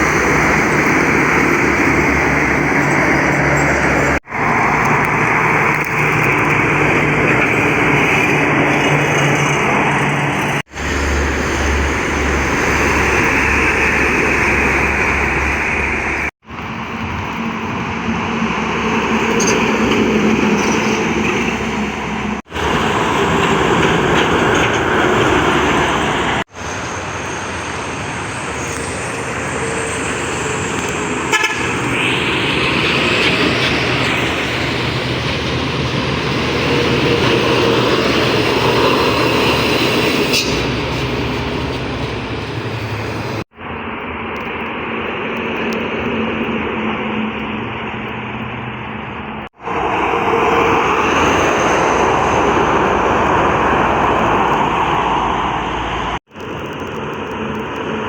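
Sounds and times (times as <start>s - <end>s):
heavy trucks passing: 0.0s - 58.0s
truck horns: 30.4s - 37.8s, 39.3s - 43.4s.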